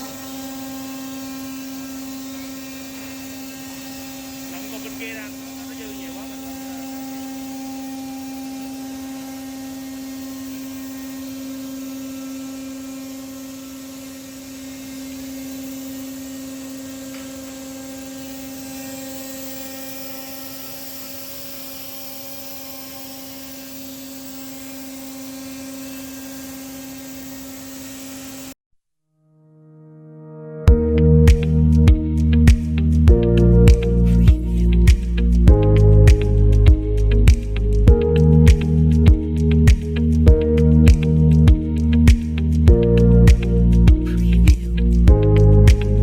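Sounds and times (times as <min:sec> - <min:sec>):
router machine humming: 0:00.0 - 0:28.6, 0:30.7 - 0:46.0.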